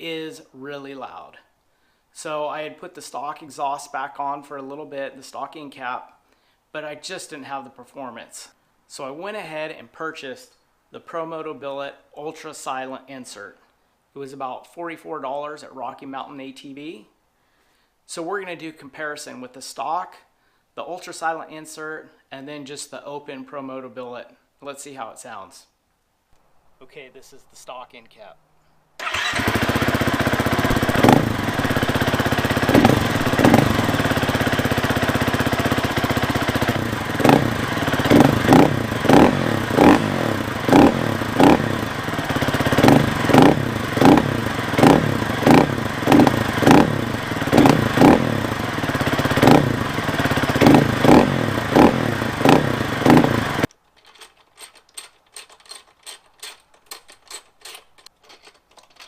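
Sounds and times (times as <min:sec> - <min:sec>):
dirt bike engine revving: 0:29.0 - 0:53.7.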